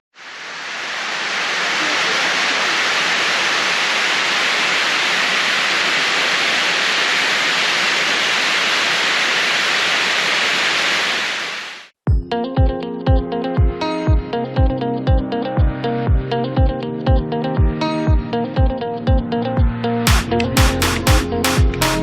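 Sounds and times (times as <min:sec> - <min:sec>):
waterfall rushing: 0:00.1 - 0:11.9
electronic music with heavy beat: 0:19.6 - 0:22.0.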